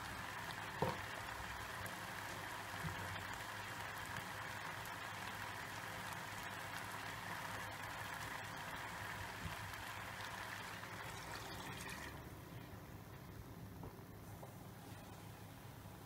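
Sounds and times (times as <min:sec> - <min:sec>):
food sizzling with crackles: 0:00.0 - 0:12.6
water being poured: 0:10.4 - 0:12.2.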